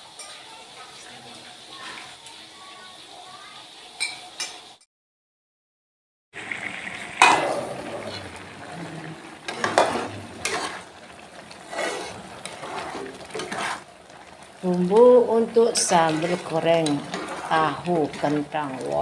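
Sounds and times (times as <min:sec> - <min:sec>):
spice paste sizzling in a wok: 0:00.0 - 0:04.8, 0:06.4 - 0:19.0
spatula scraping a pan: 0:09.5 - 0:13.9, 0:15.4 - 0:19.0.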